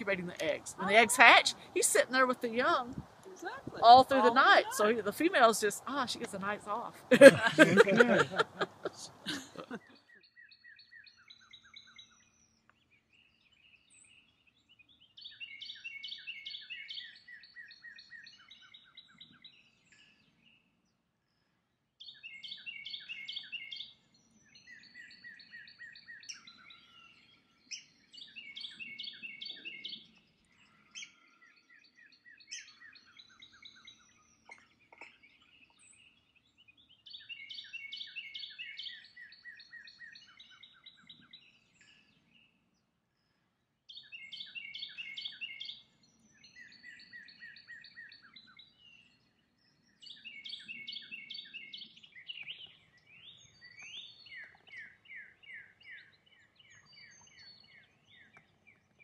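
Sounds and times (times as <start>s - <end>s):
birds chirping: 0.0s - 20.4s, 43.2s - 59.0s.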